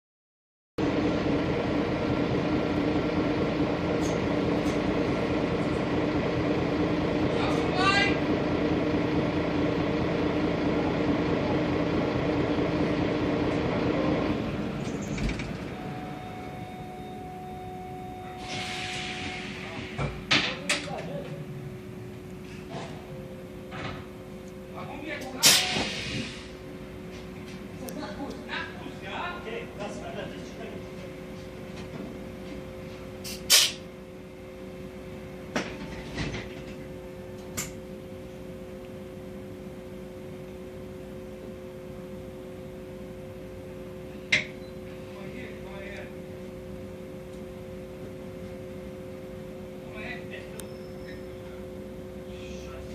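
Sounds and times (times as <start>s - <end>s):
bus engine hum: 0.8s - 38.4s, 50.4s - 52.9s
steady high whine: 0.8s - 52.9s.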